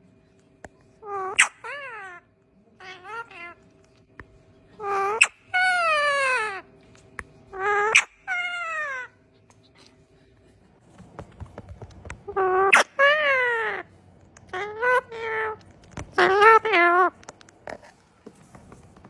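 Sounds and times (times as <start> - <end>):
parrot making meow-like calls: 1.0 - 2.2, 7.5 - 9.1, 12.3 - 17.2.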